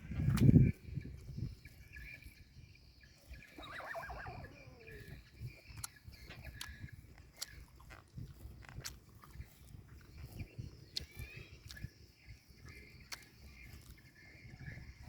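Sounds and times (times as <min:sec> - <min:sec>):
water buffalo calling: 0:03.4 - 0:05.4.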